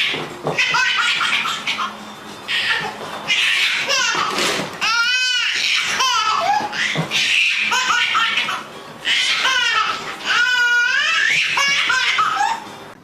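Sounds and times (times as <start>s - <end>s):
high-pitched squealing laughter: 0.6s - 4.2s, 5.6s - 12.7s.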